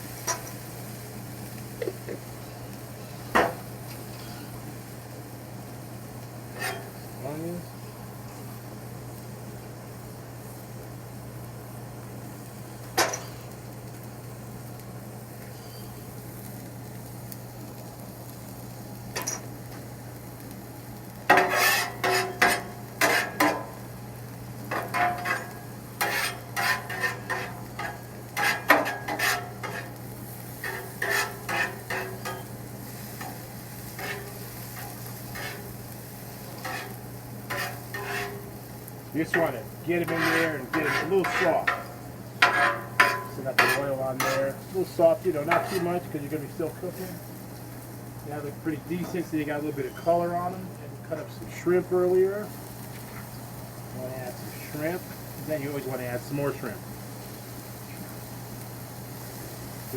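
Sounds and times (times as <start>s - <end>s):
onions sizzling on a griddle: 0.0s - 59.9s
metal spatulas scraping griddle: 6.5s - 7.0s, 21.3s - 23.8s, 24.7s - 38.6s, 39.2s - 47.2s.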